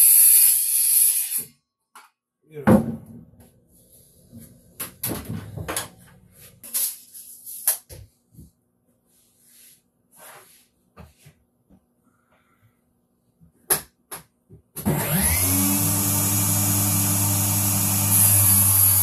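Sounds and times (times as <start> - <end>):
power tool motor running: 14.9 - 19.0.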